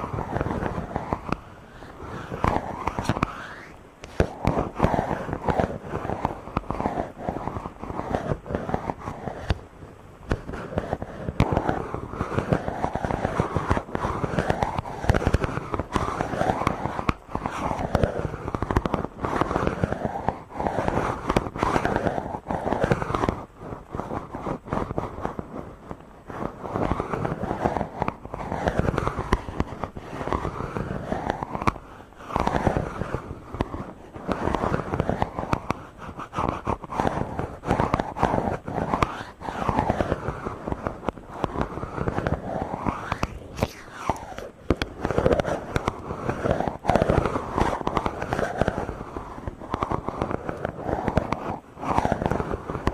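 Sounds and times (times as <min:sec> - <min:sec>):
fingers rubbing on microphone: 0:00.0 - 0:52.9.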